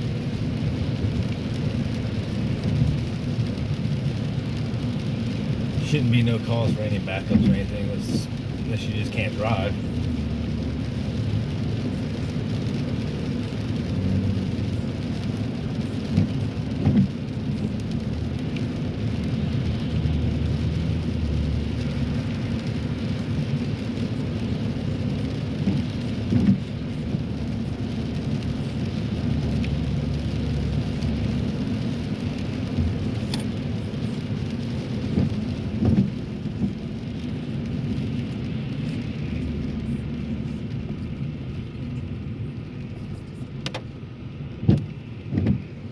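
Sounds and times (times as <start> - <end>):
car cabin road rumble: 0.0 - 45.9.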